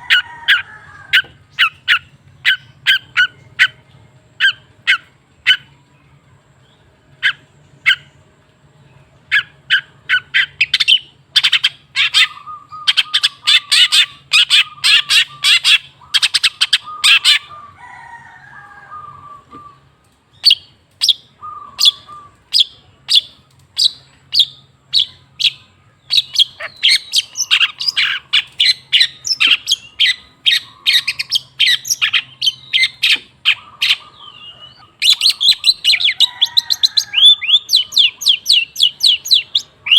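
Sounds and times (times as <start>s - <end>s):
bird calling harshly: 9.3s - 19.8s, 20.4s - 39.9s.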